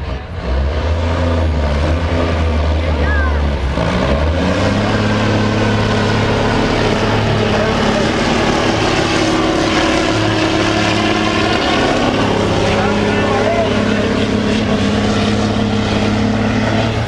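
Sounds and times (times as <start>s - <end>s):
truck engine droning under load: 0.0s - 17.0s.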